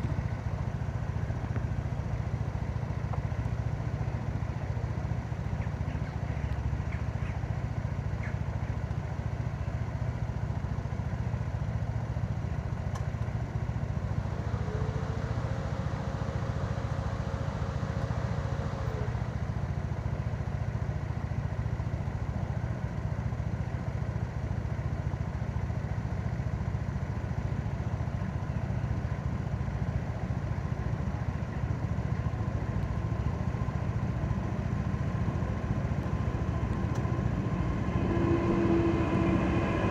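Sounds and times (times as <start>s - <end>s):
motorcycle engine droning: 0.0s - 39.9s
steady whine: 13.8s - 19.6s, 33.1s - 39.9s.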